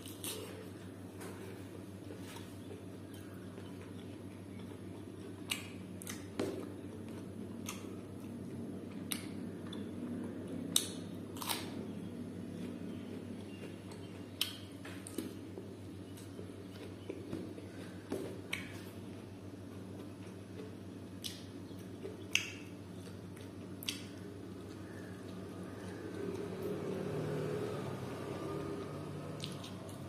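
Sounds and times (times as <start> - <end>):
person chewing food: 0.0 - 27.6, 29.3 - 30.0
steady low hum: 0.0 - 30.0
wet mouth smacks and clicks: 23.8 - 24.1.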